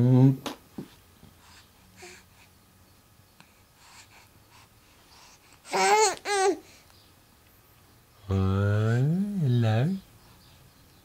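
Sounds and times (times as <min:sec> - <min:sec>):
baby babbling: 0:05.6 - 0:06.7.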